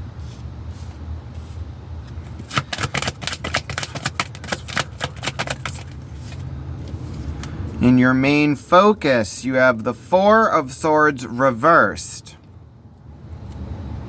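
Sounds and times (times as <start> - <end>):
cards being shuffled: 2.1 - 7.6.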